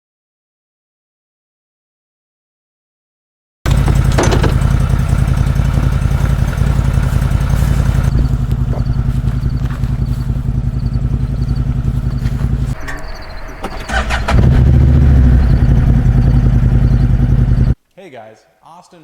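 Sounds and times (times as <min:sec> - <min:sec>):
vehicle engine rumbling: 0:03.7 - 0:17.8.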